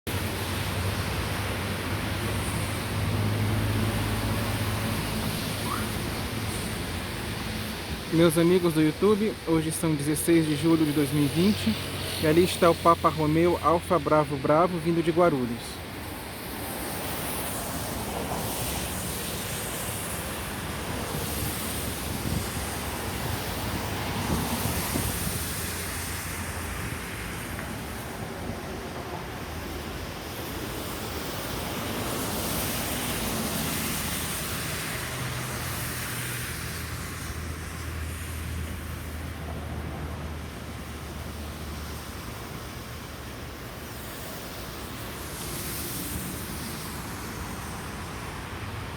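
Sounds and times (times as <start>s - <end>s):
wind on microphone: 20.6s - 25.9s.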